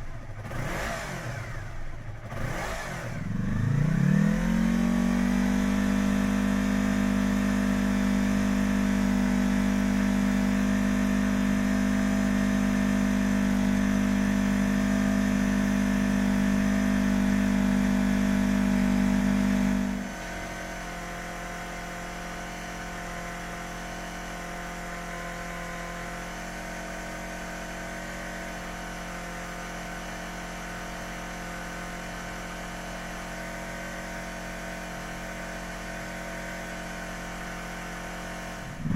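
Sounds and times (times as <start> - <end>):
motorcycle engine idling: 0.0 - 15.4, 36.9 - 38.9.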